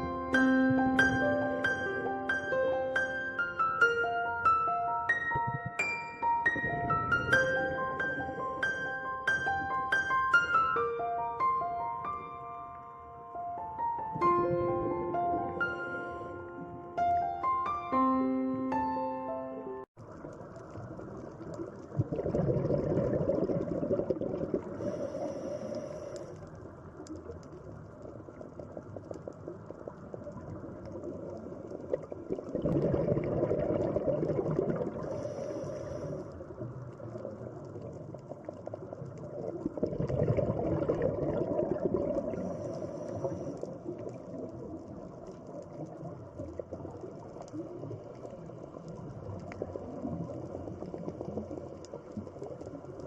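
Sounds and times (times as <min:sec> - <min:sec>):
underwater bubbling rumble: 0:05.3 - 0:05.8, 0:06.4 - 0:09.9, 0:14.1 - 0:17.0, 0:20.0 - 0:53.0.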